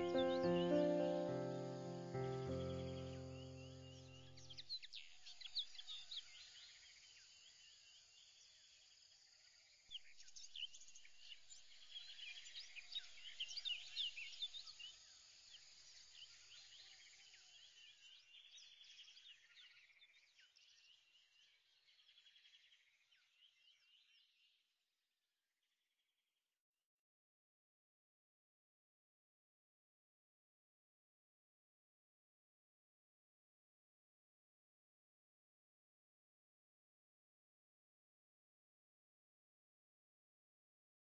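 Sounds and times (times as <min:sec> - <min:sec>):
birds chirping and trilling: 0:00.0 - 0:06.7.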